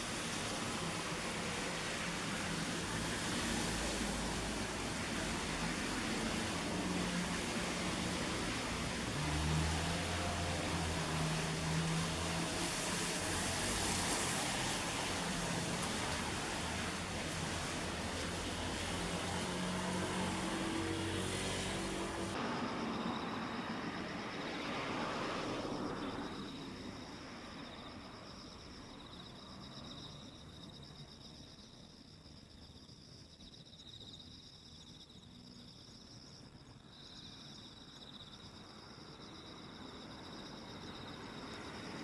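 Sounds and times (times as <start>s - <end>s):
passing traffic rush: 0.0s - 29.8s, 39.0s - 42.0s
crickets trilling: 0.0s - 42.0s.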